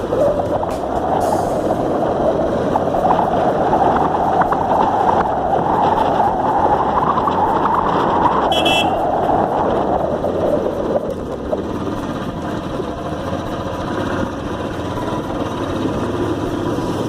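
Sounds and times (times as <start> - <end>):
motorcycle engine and road noise: 0.0 - 17.0
horn honk: 8.5 - 9.0.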